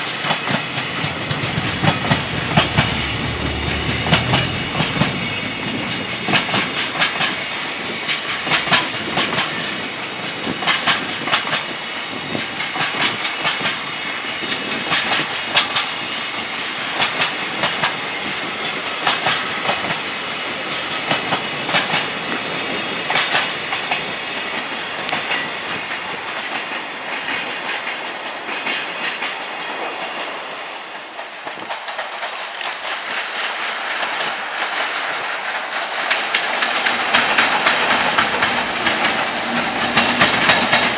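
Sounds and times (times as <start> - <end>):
train wheels clacking over rail joints: 0.0 - 40.9.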